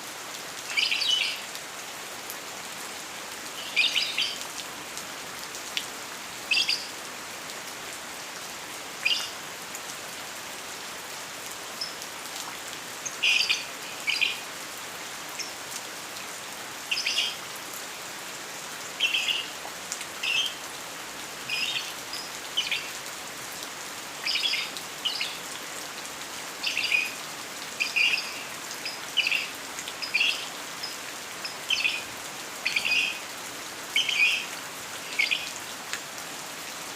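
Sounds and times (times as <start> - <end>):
rain falling: 0.0 - 36.9
bird chirping: 27.8 - 32.0.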